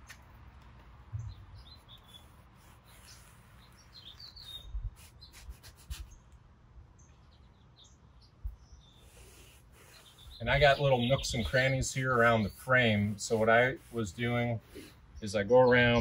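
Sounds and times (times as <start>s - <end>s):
birds chirping: 0.0s - 16.0s
towel rubbing on metal door: 9.1s - 15.0s.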